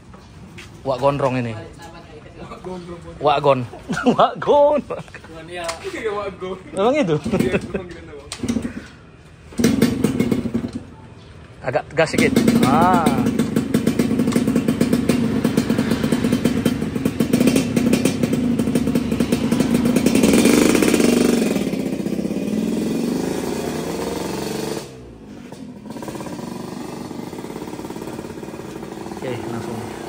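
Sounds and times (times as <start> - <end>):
two-stroke motorcycle engine: 7.2 - 8.9, 9.5 - 11.0, 12.0 - 30.0.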